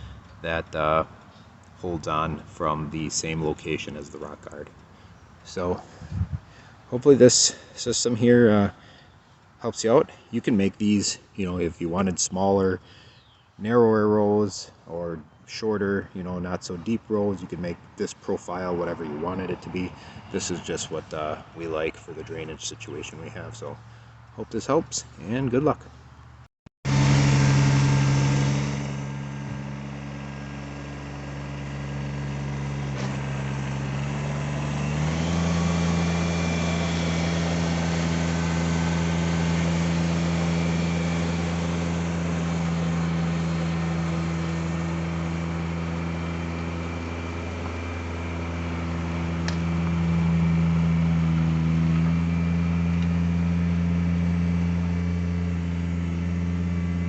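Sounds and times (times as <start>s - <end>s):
tractor diesel engine running: 0.0s - 10.8s, 26.9s - 57.0s.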